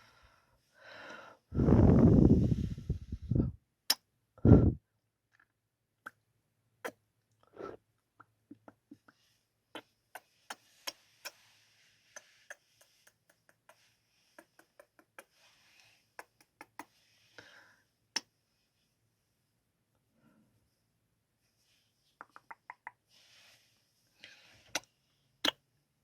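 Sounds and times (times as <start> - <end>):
faint breathy hiss: 0.0 - 3.5, 9.0 - 18.9, 23.0 - 25.4
soft lip smacks: 9.8 - 11.4, 12.2 - 15.5, 16.2 - 17.0, 22.2 - 23.0.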